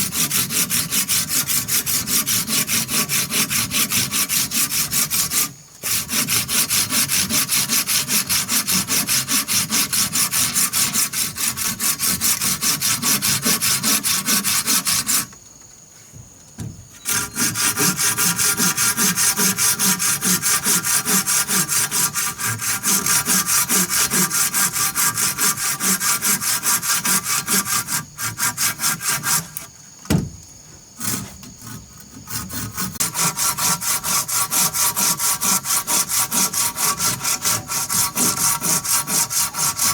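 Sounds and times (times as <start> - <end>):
hand saw cutting wood: 0.0 - 15.4, 17.0 - 30.3, 30.9 - 39.9
sharp knock: 30.1 - 30.4.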